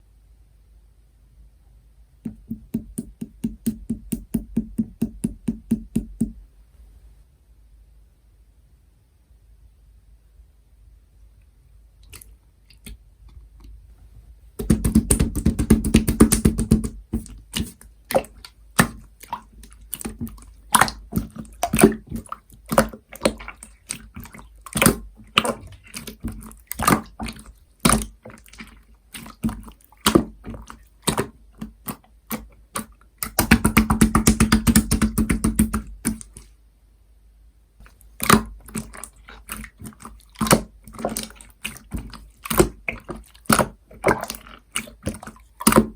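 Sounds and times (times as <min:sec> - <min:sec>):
hands squishing slime: 0:14.6 - 0:36.5, 0:37.8 - 0:45.9.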